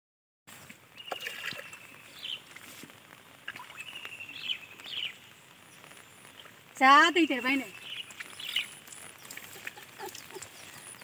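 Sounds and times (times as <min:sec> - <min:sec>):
faint outdoor background: 0:00.5 - 0:11.0
birds whistling and chirping: 0:01.0 - 0:02.5, 0:03.6 - 0:06.5, 0:07.1 - 0:11.0.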